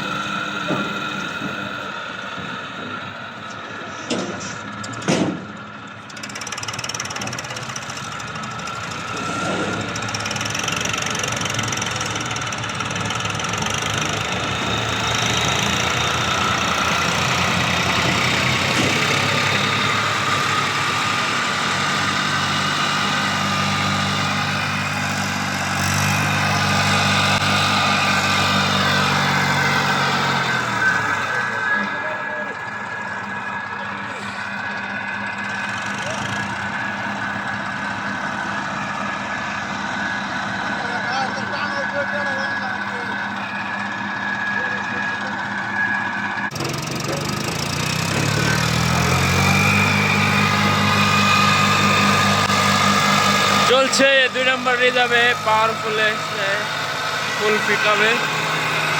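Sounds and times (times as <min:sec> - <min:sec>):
tractor diesel engine under load: 0:00.0 - 0:58.9
sharp knocks: 0:04.0 - 0:05.6.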